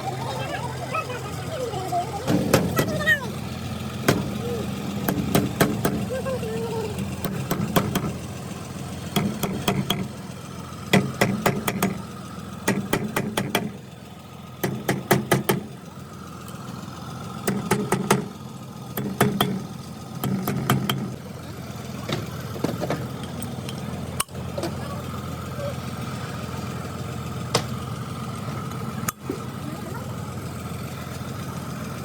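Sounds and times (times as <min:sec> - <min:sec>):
steady engine-like hum: 0:00.0 - 0:32.0
bursts of sharp knocks: 0:05.0 - 0:06.0, 0:07.2 - 0:08.2, 0:10.9 - 0:12.0, 0:12.6 - 0:13.8, 0:14.6 - 0:15.7, 0:17.4 - 0:18.3.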